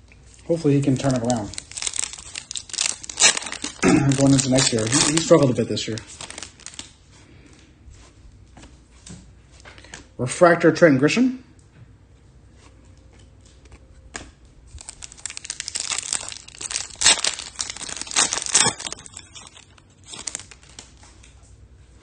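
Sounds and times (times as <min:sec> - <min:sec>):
card pack wrapper crinkling: 0:00.5 - 0:07.0, 0:14.7 - 0:21.4.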